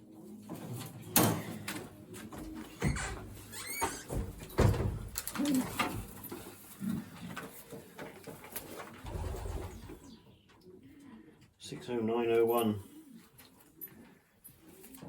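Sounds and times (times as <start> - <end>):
pigeons cooing: 0.0 - 4.4, 5.1 - 11.6, 12.5 - 15.0
knocks and rustles of handled birds: 0.3 - 10.0, 12.9 - 15.0.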